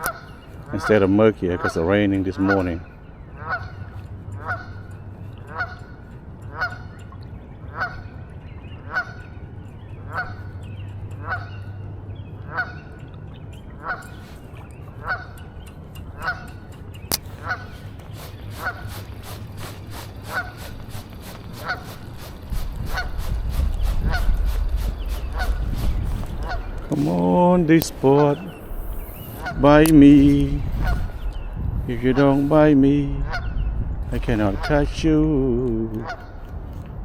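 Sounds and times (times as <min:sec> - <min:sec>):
low steady rumble: 0:00.0 - 0:37.0
sharp click: 0:15.6 - 0:17.7.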